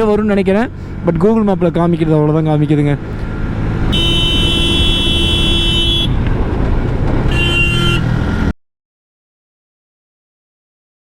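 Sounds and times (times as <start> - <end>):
wind and road noise: 0.0 - 8.6
vehicle horn blowing: 3.9 - 6.2, 7.3 - 8.2.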